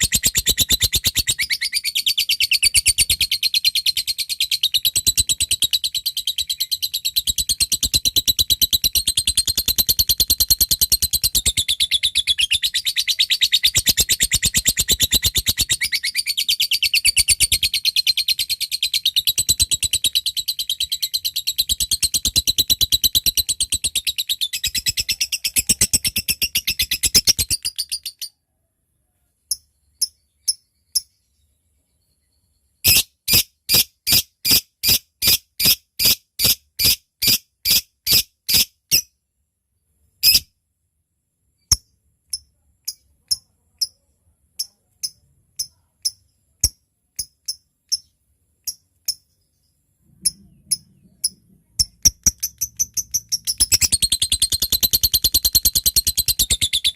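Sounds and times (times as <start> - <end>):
loud bird chirps: 0.0 - 28.4, 29.7 - 39.2, 40.2 - 40.5, 44.6 - 56.9
lovebird rattling trill: 50.2 - 56.9.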